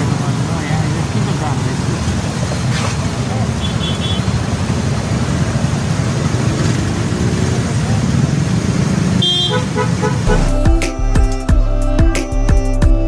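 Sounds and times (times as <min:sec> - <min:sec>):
motorcycle engine rumble: 0:00.0 - 0:12.5
vehicle horn honking: 0:03.6 - 0:04.4, 0:09.2 - 0:10.6.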